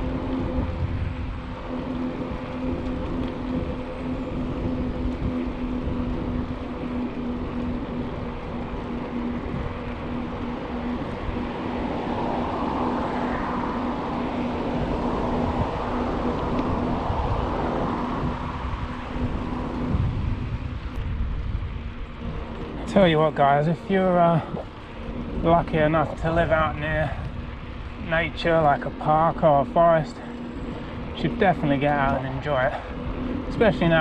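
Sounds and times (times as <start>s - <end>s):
bicycle tyres rolling on trail: 0.0s - 34.0s
steady hum: 0.0s - 34.0s
wind buffeting microphone: 0.0s - 34.0s.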